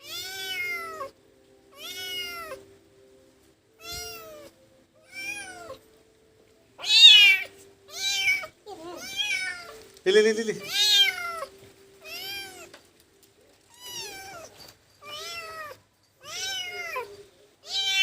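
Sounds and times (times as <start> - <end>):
cat meowing: 0.0 - 2.7, 3.8 - 5.8, 6.8 - 9.8, 10.6 - 12.7, 13.7 - 18.0.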